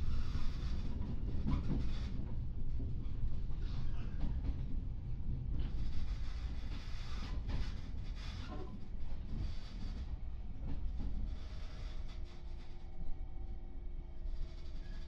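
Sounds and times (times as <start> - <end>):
train rumble inside carriage: 0.0 - 15.0.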